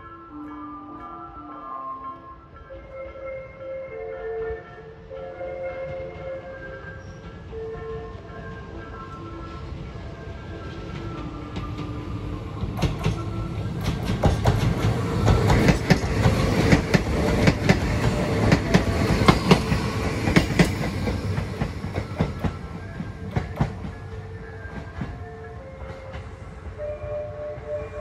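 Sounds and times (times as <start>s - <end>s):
level-crossing warning bell: 0.0s - 28.0s
train wheels clacking: 5.8s - 28.0s.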